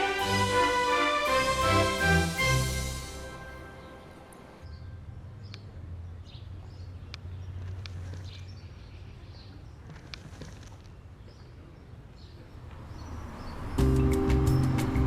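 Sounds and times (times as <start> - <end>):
starlings chirping: 12.2 - 15.0.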